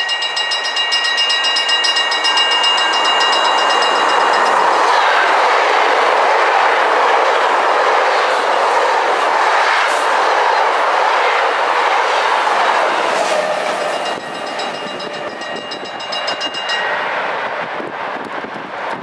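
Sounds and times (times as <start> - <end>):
level crossing bells ringing: 0.0 - 5.2, 13.6 - 17.5
train wheel and rail noise: 0.0 - 19.0.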